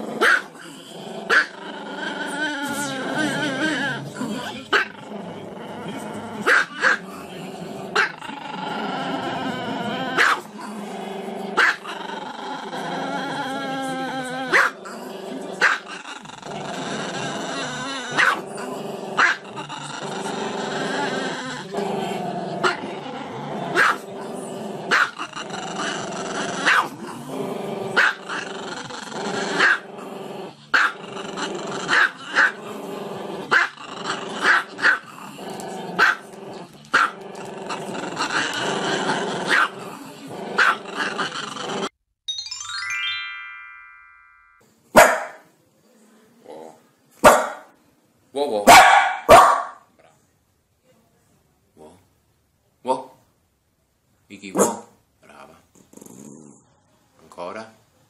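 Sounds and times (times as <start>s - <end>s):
dog growly grumbles: 0.0s - 42.0s, 46.4s - 46.8s, 55.3s - 56.7s
dog barking: 0.2s - 0.5s, 6.5s - 7.0s, 10.2s - 10.4s, 11.6s - 11.8s, 14.5s - 14.8s, 18.2s - 18.4s, 23.8s - 24.0s, 26.7s - 26.9s, 30.8s - 31.0s, 36.0s - 36.2s, 39.5s - 39.7s, 45.0s - 45.4s, 47.2s - 47.7s, 48.7s - 49.9s, 54.6s - 55.0s.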